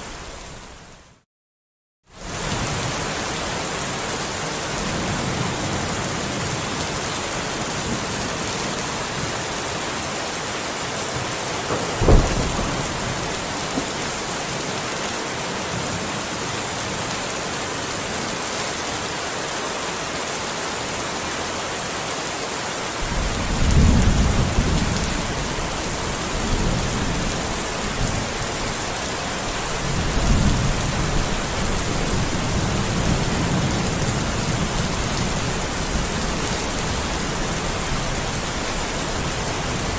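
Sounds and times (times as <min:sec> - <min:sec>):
steady rain falling: 0:02.1 - 0:39.9
thunder: 0:11.6 - 0:14.6, 0:23.0 - 0:28.3.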